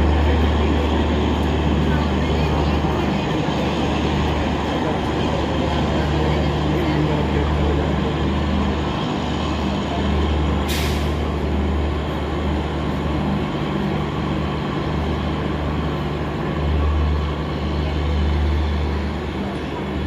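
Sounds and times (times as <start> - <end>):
train engine humming: 0.0 - 20.0
air release hiss: 10.6 - 11.2.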